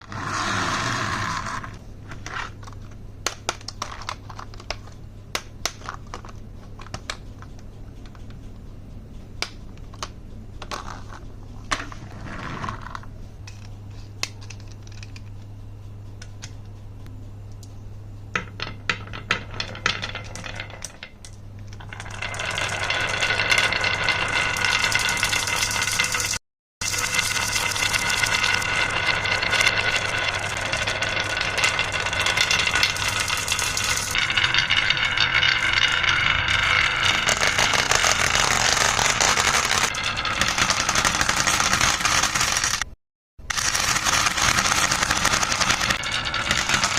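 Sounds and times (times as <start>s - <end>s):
steady low hum: 0.0s - 24.0s
marbles clacking down wooden run: 21.8s - 46.9s.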